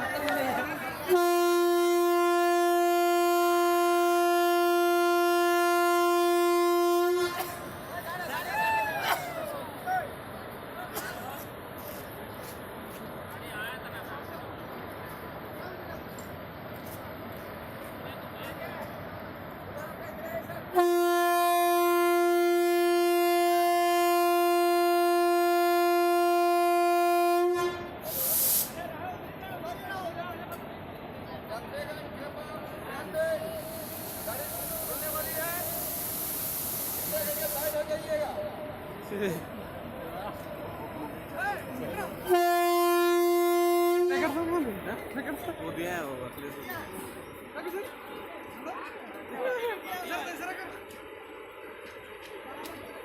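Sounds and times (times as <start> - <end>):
train horn: 1.0 - 8.1, 20.7 - 28.2, 42.0 - 44.8.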